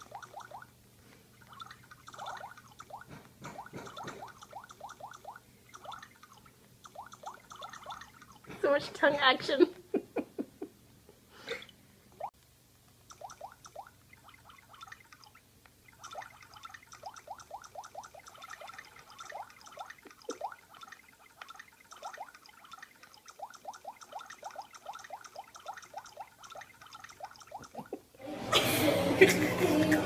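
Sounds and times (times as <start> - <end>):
parrot tongue clicking: 13.1 - 27.9.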